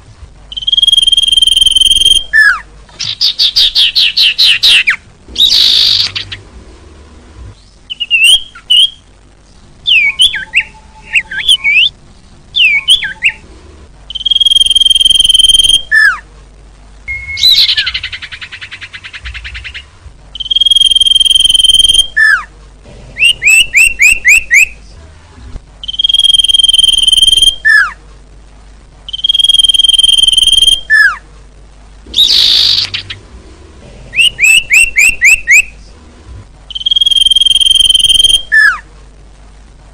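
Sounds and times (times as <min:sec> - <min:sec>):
high bird whistles: 0:00.5 - 0:06.4, 0:07.9 - 0:09.0, 0:09.9 - 0:11.9, 0:14.1 - 0:16.2, 0:17.1 - 0:19.8, 0:20.4 - 0:22.5, 0:25.8 - 0:28.0, 0:29.1 - 0:31.2, 0:32.1 - 0:33.1, 0:34.2 - 0:35.7, 0:36.7 - 0:38.8.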